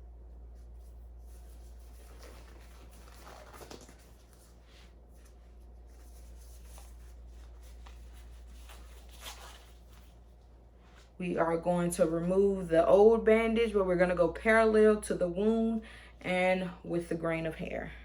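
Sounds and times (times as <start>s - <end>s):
low steady hum: 0.0s - 18.0s
rustling of disposable gloves: 0.1s - 11.2s.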